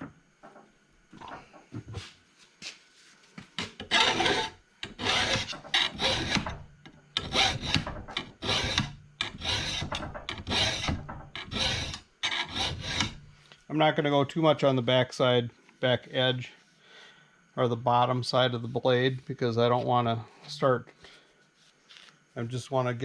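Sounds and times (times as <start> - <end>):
hand file rasping on metal blade: 3.8 - 6.6, 7.2 - 13.2.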